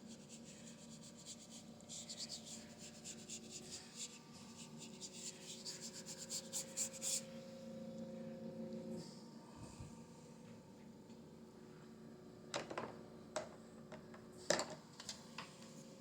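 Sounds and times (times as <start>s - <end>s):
paintbrush scratching on canvas: 0.0s - 7.3s
faint steady hum: 0.0s - 16.0s.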